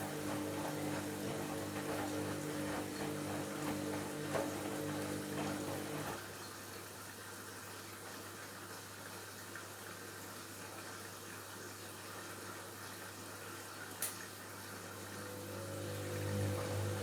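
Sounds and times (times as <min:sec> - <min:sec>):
water rushing into washing machine: 0:00.0 - 0:06.6, 0:14.3 - 0:17.0.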